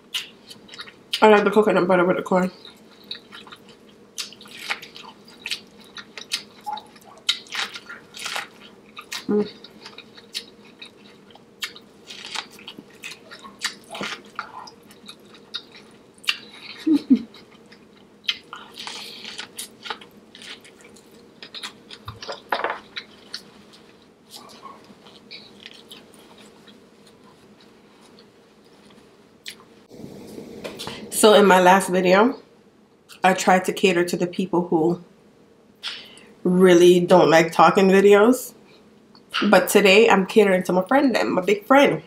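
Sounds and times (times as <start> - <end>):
wet chewing and lip smacking: 2.6 - 23.5.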